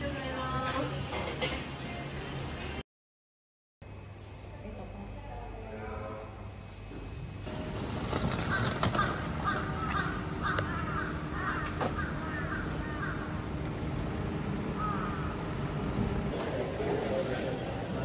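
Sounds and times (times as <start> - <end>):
steady background hum: 3.8 - 18.0
bird calling: 8.1 - 13.5, 14.8 - 15.4.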